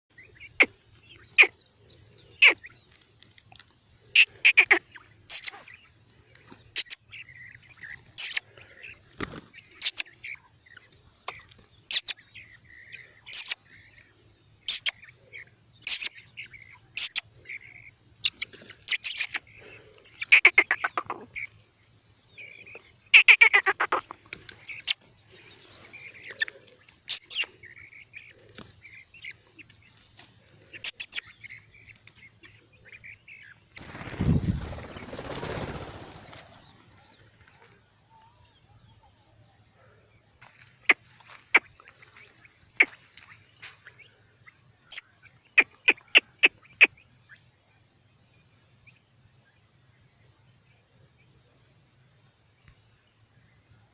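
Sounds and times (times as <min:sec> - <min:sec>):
chicks peeping: 0:00.1 - 0:39.2.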